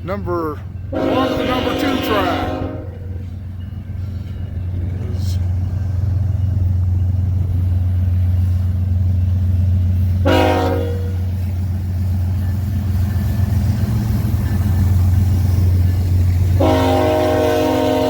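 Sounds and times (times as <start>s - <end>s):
diesel locomotive rumbling: 0.0s - 18.0s
train horn blast: 0.9s - 3.2s, 10.2s - 11.4s, 16.5s - 18.0s.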